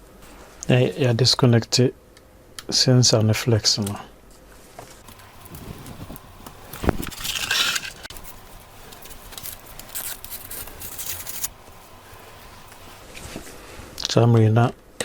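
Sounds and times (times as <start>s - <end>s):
repair tools scraping: 5.0s - 13.1s.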